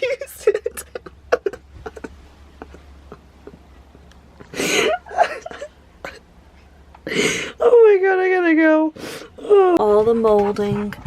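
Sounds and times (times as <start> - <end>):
woman laughing breathily: 0.2 - 3.7, 4.4 - 6.2, 7.0 - 7.6.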